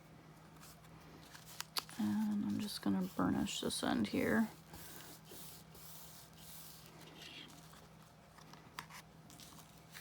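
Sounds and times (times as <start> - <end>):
paper rubbing: 4.7 - 7.8.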